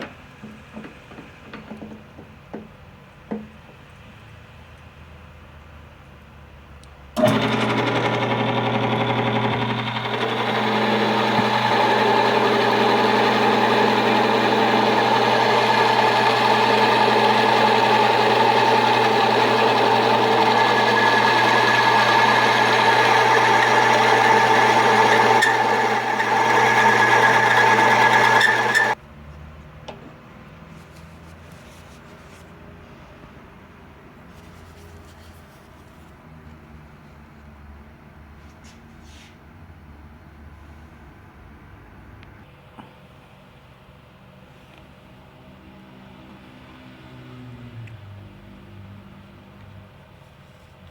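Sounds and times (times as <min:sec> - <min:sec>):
motor hum: 0:07.2 - 0:29.0.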